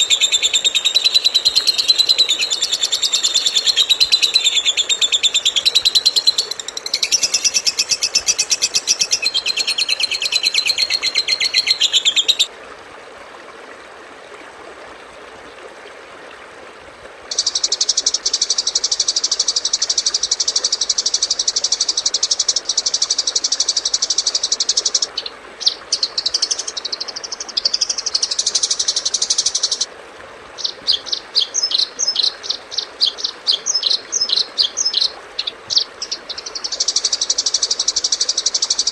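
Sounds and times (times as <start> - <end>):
songbird trilling and chirping: 0.0 - 12.5, 30.6 - 38.6.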